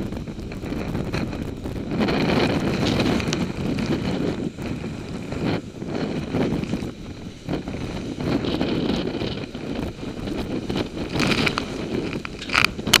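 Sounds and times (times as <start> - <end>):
hurricane wind gusting: 0.0 - 13.0.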